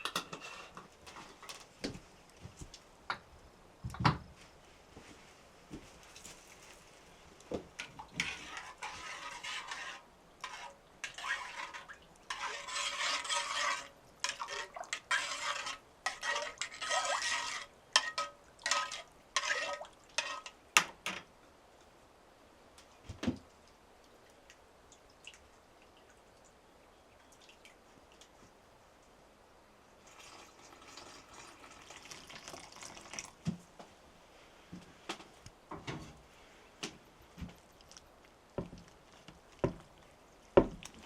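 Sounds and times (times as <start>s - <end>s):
dishes and utensils clinking: 0.0s - 1.6s.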